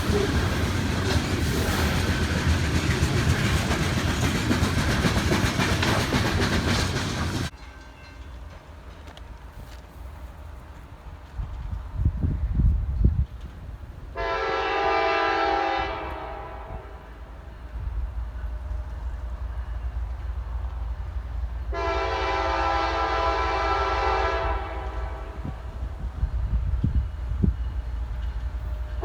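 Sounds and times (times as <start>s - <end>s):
locomotive horn blasts: 14.2s - 17.4s, 21.7s - 25.7s.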